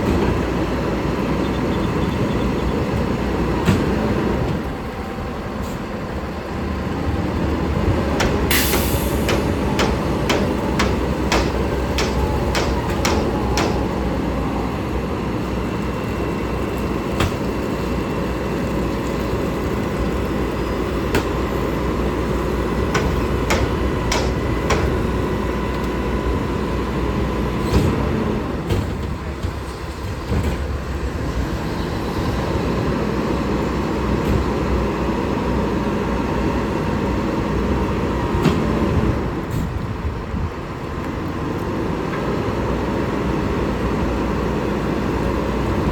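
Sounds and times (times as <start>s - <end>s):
garbage truck engine rumble: 0.0s - 45.9s
metallic clanks and knocks: 8.2s - 14.0s.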